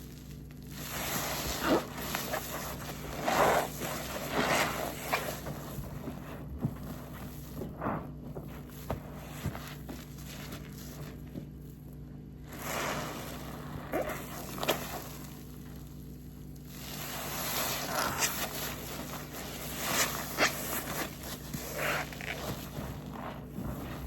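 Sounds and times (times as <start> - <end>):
foam crackling: 0.0 - 24.0
sponge squelching: 0.0 - 24.0.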